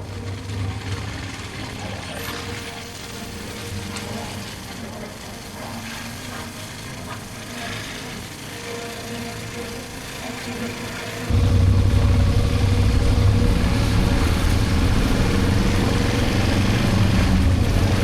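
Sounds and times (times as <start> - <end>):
motorcycle engine running: 11.3 - 18.0
rushing wind: 11.3 - 18.0.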